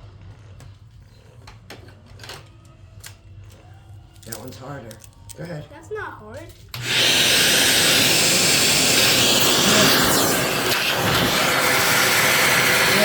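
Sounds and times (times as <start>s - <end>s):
vacuum cleaner running: 6.7s - 13.0s.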